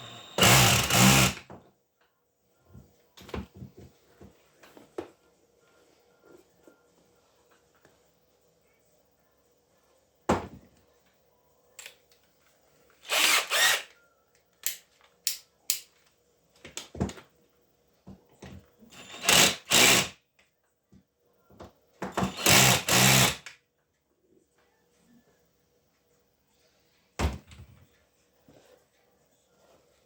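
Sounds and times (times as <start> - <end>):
small power tool running: 0.0 - 1.4, 13.1 - 13.9, 19.0 - 20.1, 22.2 - 23.4.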